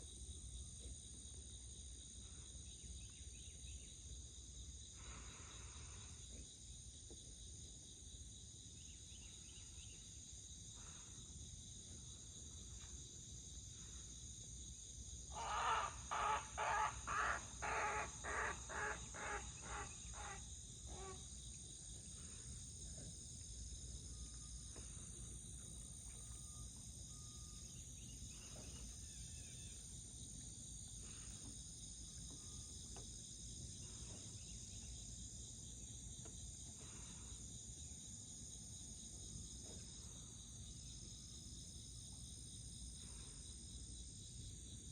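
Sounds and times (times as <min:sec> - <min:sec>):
cicadas droning: 0:00.0 - 0:44.9
crane piercing calls: 0:15.3 - 0:21.2.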